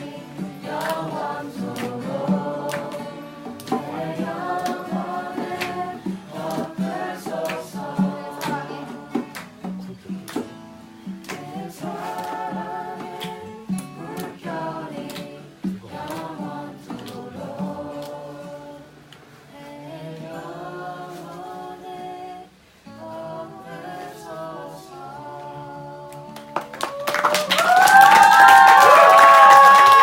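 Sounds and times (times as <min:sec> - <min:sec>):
group singing a hymn: 0:00.0 - 0:10.4, 0:11.0 - 0:26.8
clapping: 0:00.7 - 0:04.0, 0:05.5 - 0:05.8, 0:07.4 - 0:07.8, 0:08.4 - 0:08.7, 0:09.3 - 0:10.6, 0:11.2 - 0:11.5, 0:13.2 - 0:14.4, 0:16.0 - 0:16.4, 0:26.4 - 0:30.0
cheering: 0:26.7 - 0:30.0.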